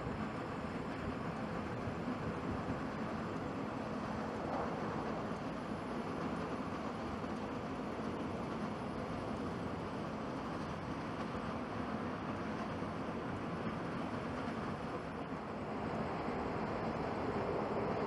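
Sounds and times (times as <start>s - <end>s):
jet engine deep rushing: 1.5s - 8.8s, 14.2s - 18.0s.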